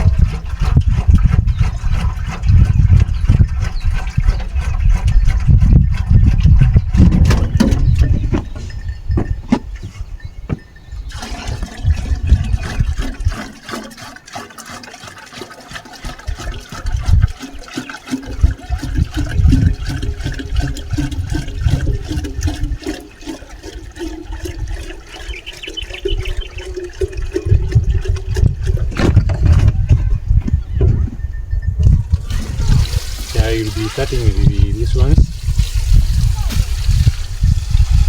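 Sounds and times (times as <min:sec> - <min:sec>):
water pouring into a container: 0:11.1 - 0:29.3, 0:32.1 - 0:38.0
low rumbling: 0:18.3 - 0:38.0.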